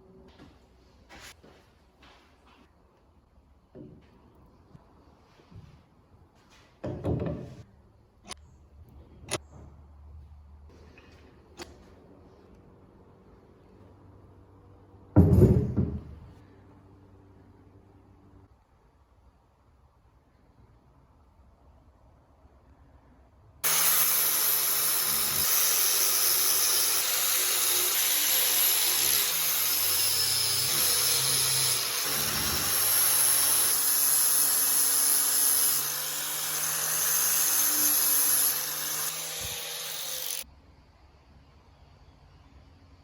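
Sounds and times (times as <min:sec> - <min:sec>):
power tool whining and grinding: 0:23.6 - 0:40.4.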